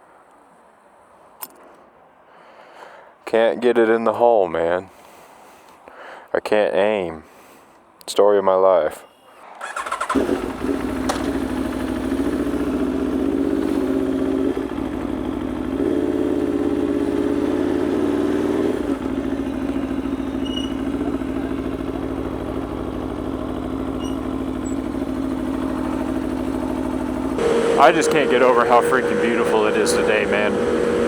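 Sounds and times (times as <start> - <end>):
motorcycle engine idling: 9.7 - 31.0.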